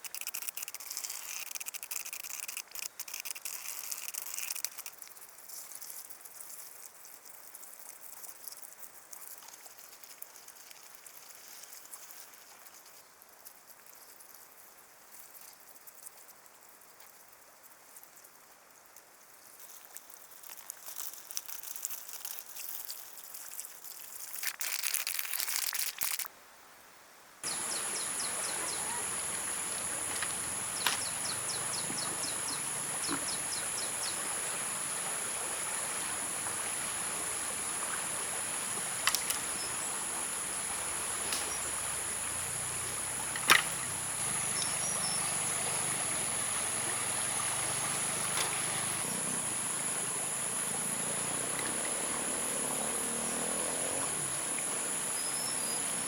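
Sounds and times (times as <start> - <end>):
insects trilling: 27.4 - 56.0
sharp clicks: 30.0 - 33.4, 38.9 - 39.8.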